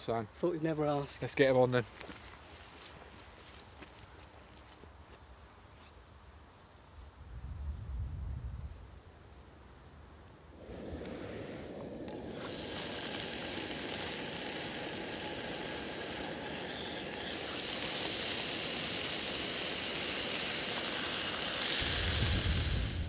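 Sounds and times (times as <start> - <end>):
bacon sizzling in a frying pan: 12.0 - 23.0.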